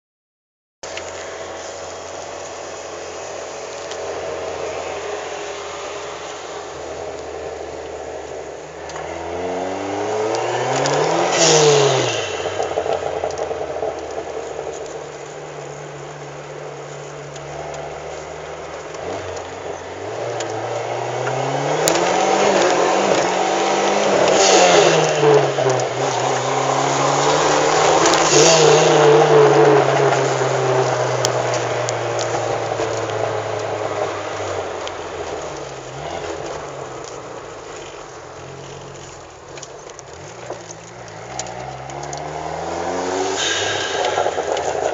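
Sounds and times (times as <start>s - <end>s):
car engine accelerating hard: 0.9s - 44.9s.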